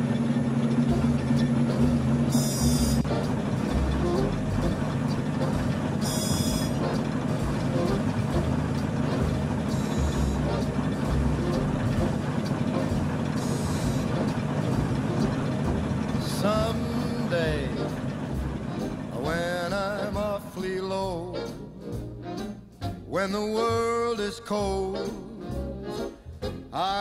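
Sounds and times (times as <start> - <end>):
car engine running steadily: 0.0 - 26.9
brief high buzz: 2.3 - 3.3, 6.0 - 7.0, 9.7 - 10.7.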